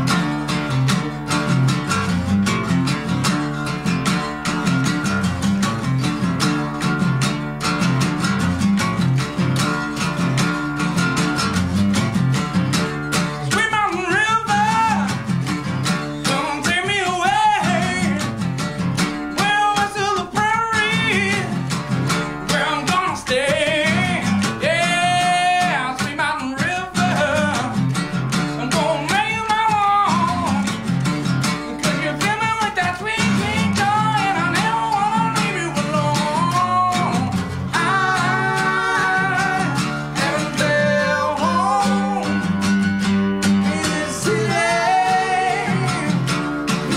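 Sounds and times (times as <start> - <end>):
strummed acoustic guitar: 0.0 - 46.9
man singing: 13.4 - 15.4, 16.1 - 18.5, 19.3 - 30.8, 31.6 - 42.7, 43.5 - 46.9.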